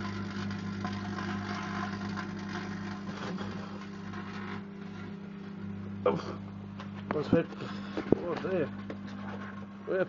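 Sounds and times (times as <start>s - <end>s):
foil arcing crackle: 0.0s - 5.6s
microwave oven humming: 0.0s - 10.0s.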